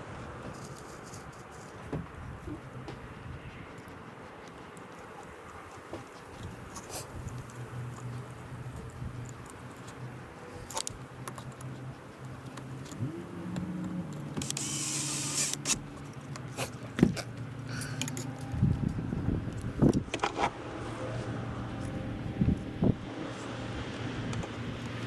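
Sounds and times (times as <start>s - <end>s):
motor-like whine: 13.0s - 15.8s
tools clicking and rattling: 17.8s - 18.5s.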